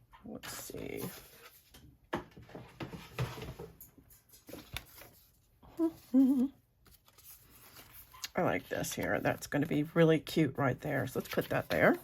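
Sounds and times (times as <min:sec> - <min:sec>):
paper rustling: 0:04.3 - 0:06.1, 0:06.8 - 0:09.8, 0:10.9 - 0:12.0.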